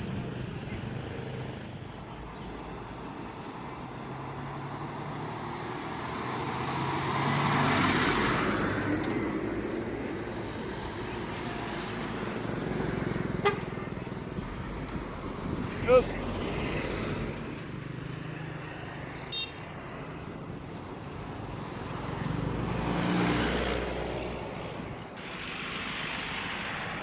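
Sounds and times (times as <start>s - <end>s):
vehicle passing on road: 0.0s - 27.0s
heavy engine running: 24.8s - 27.0s.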